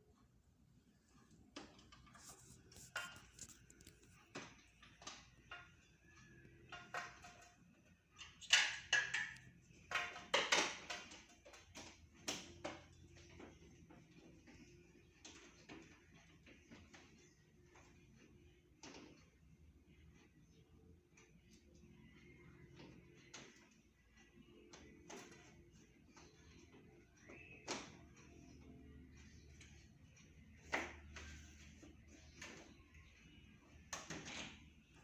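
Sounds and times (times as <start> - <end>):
objects being handled: 0.9 - 19.2.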